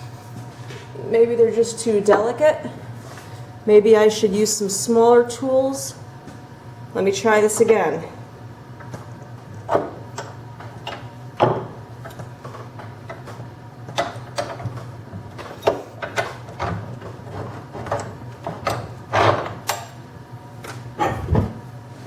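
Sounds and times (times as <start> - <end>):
low steady hum: 0.0 - 22.0
tools clicking and knocking: 9.7 - 14.8, 15.4 - 19.9.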